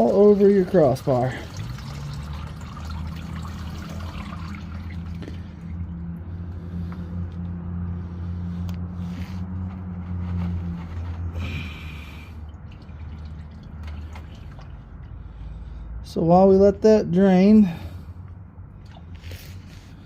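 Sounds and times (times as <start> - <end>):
oil pouring into a bucket: 0.0 - 5.9, 10.2 - 15.2
oil splashing: 0.0 - 7.0, 10.9 - 15.8, 18.8 - 20.0.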